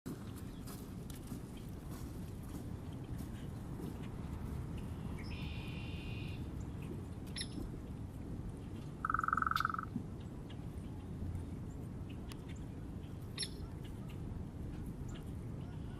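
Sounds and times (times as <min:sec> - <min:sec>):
steady low rumble: 0:00.1 - 0:15.9
buzzy bird trill: 0:09.0 - 0:09.9
harsh bird call: 0:09.0 - 0:09.9
sharp bird chirp: 0:09.0 - 0:09.9, 0:13.4 - 0:13.7.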